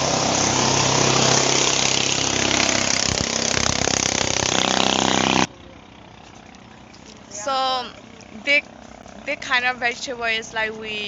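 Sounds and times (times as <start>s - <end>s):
loud rushing noise: 0.0s - 5.5s
small engine running: 0.0s - 6.7s.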